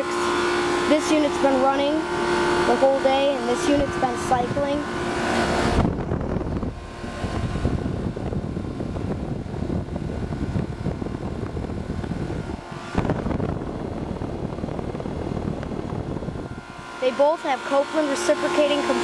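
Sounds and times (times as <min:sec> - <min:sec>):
compressor hum: 0:00.0 - 0:19.0
condenser fans whirring: 0:00.0 - 0:19.0.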